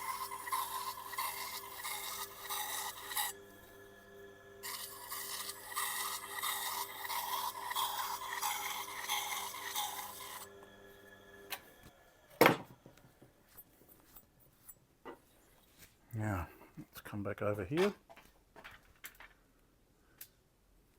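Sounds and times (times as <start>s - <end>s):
knife rubbing on leather wheel: 0.0s - 3.4s, 4.6s - 10.5s
sharpener motor humming: 0.0s - 11.7s.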